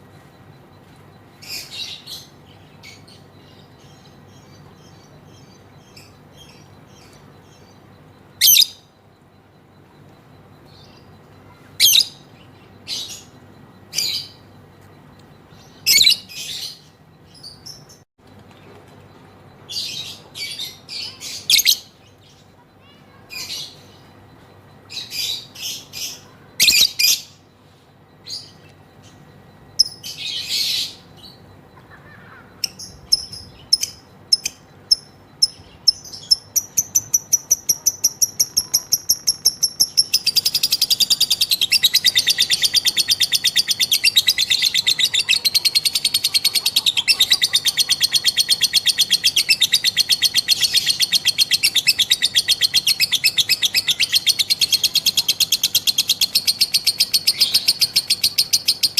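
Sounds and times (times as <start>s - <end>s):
lovebird chirping and trilling: 1.4s - 8.9s, 10.6s - 14.5s, 15.4s - 18.0s, 19.7s - 24.2s, 24.9s - 27.4s, 28.2s - 58.9s.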